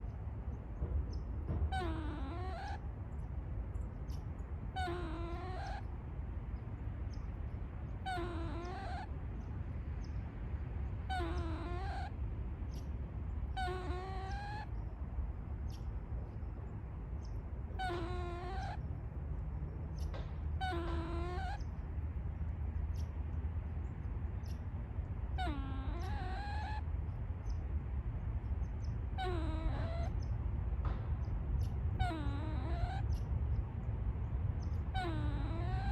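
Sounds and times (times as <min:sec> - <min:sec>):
squirrel whining call: 0:01.6 - 0:02.8, 0:04.7 - 0:05.9, 0:08.0 - 0:09.1, 0:11.1 - 0:12.8, 0:13.5 - 0:14.8, 0:17.2 - 0:18.9, 0:20.0 - 0:21.8, 0:25.3 - 0:27.6, 0:29.0 - 0:30.3, 0:31.6 - 0:33.3, 0:34.6 - 0:35.9.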